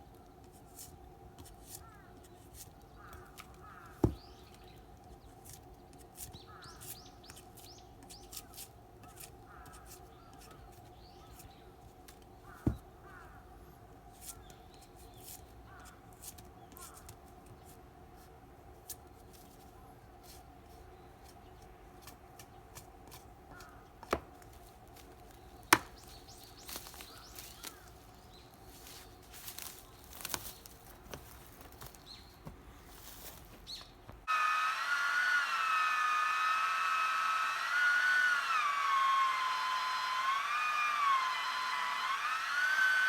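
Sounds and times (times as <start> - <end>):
chainsaw running at high revs: 34.3 - 43.0.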